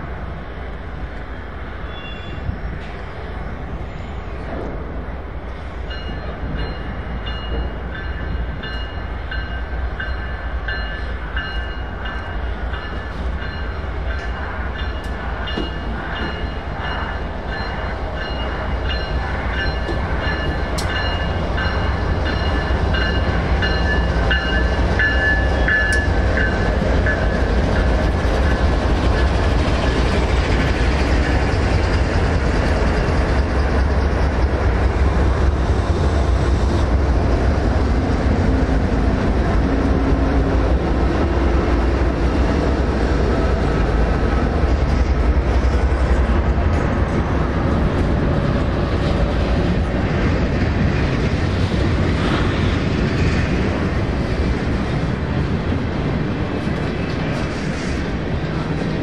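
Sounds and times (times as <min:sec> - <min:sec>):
train approaching rumble: 0:00.0 - 0:59.0
high steady ringing tones: 0:05.9 - 0:28.0.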